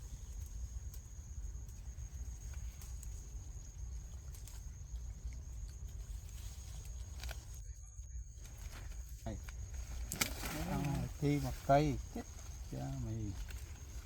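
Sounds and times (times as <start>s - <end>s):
faint clicks: 0.0s - 7.6s, 8.4s - 14.0s.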